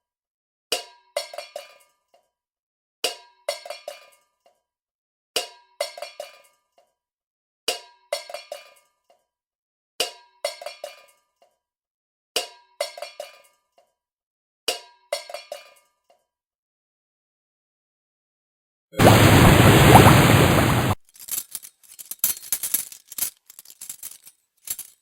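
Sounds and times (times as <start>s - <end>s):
metal kitchen object clinking: 21.1s - 25.0s.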